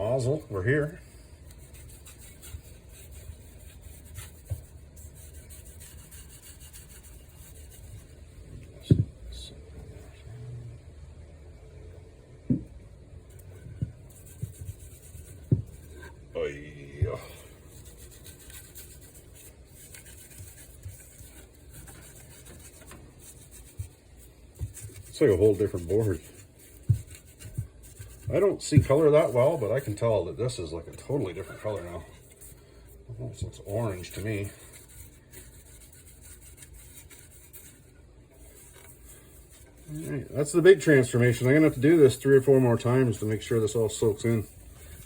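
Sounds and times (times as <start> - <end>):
gloved hand rubbing wood: 0.0 - 8.3, 13.6 - 16.2, 17.1 - 45.0
wooden board knocks: 12.5 - 12.7
light bumps: 20.4 - 32.5.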